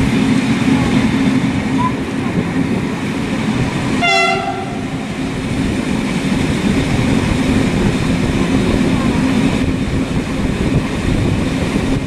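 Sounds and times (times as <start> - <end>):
moving vehicle rumble: 0.0 - 12.0
short horn blast: 4.0 - 4.9.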